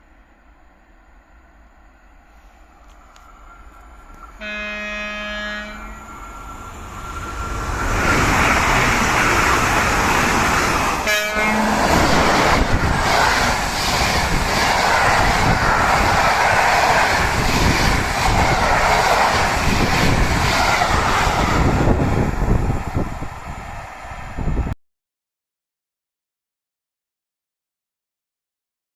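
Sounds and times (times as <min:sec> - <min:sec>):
train passing at speed: 0:00.0 - 0:24.8
train horn: 0:04.3 - 0:06.2, 0:11.0 - 0:12.2.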